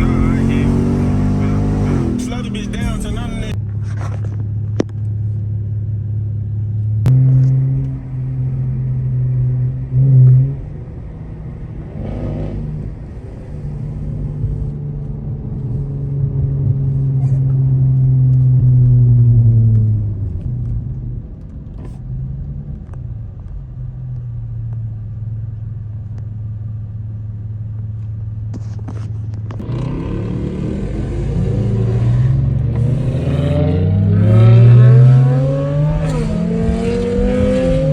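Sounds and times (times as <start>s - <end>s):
car engine revving through exhaust: 0.0s - 24.8s, 28.5s - 37.9s.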